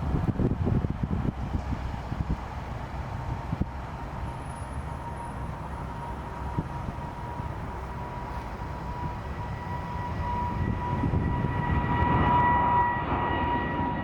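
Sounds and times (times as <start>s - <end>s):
jet engines whining and rumbling: 0.0s - 14.0s.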